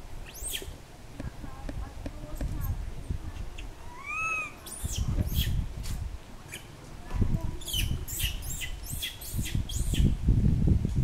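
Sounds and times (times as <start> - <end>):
small birds chirping: 0.2 - 0.8, 1.8 - 5.6, 6.4 - 6.8, 7.4 - 10.2.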